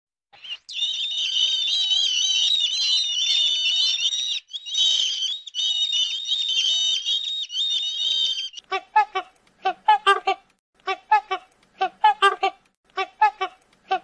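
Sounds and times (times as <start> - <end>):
high-pitched twittering calls: 0.4 - 8.6.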